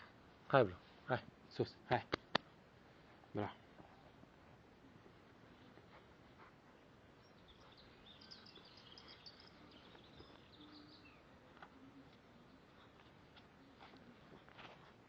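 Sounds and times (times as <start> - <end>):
faint bird chirps: 5.4 - 14.4.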